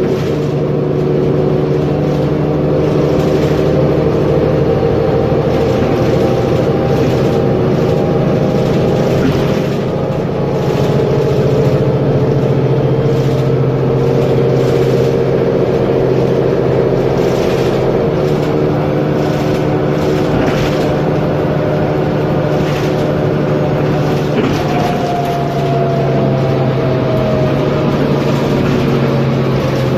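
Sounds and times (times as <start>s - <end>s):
bus diesel engine running: 0.0s - 29.9s.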